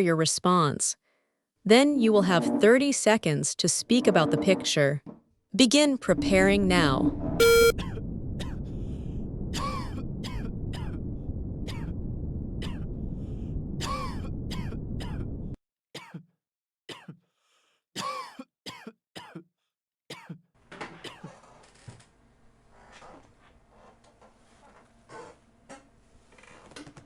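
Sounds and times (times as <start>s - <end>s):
background rumble: 6.0s - 15.6s
throat clearing: 16.0s - 16.3s, 16.9s - 17.2s, 18.0s - 19.5s, 20.1s - 21.4s
people coughing: 18.0s - 19.4s.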